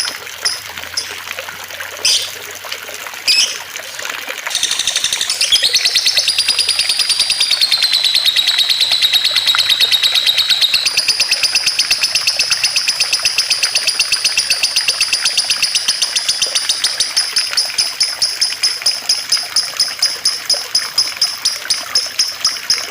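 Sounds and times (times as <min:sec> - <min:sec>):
songbird trill of high chips: 0:00.0 - 0:01.2, 0:02.0 - 0:02.3, 0:03.3 - 0:03.6, 0:04.5 - 0:18.7.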